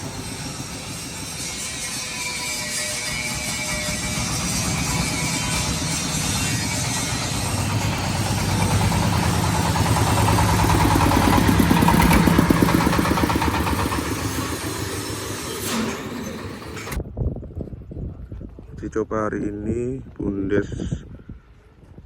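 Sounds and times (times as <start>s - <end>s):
diesel engine running corn sheller: 0.0s - 17.0s.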